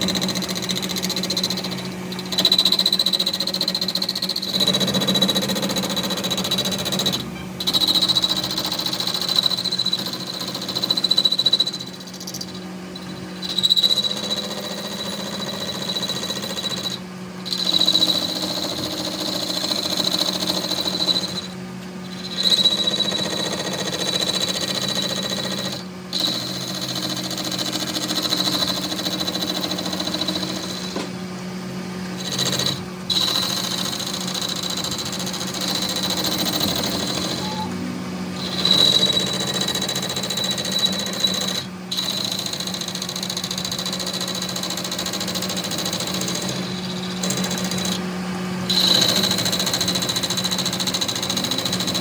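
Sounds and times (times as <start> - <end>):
workshop machine whining: 0.0 - 10.8, 11.6 - 52.0.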